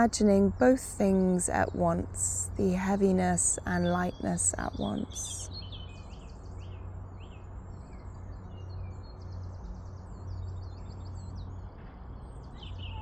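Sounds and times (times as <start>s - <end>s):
steady low hum: 0.0s - 12.4s
small birds chirping and trilling: 2.9s - 13.0s.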